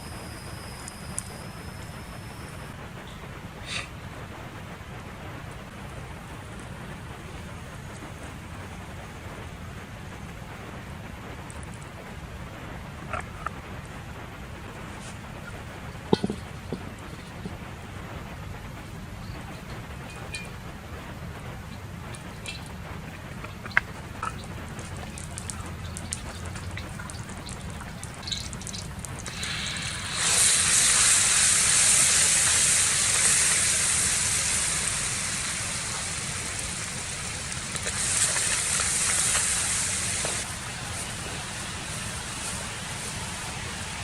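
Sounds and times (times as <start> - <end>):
steady rain-like rumble: 0.0 - 44.0
food sizzling in hot oil: 21.7 - 44.0.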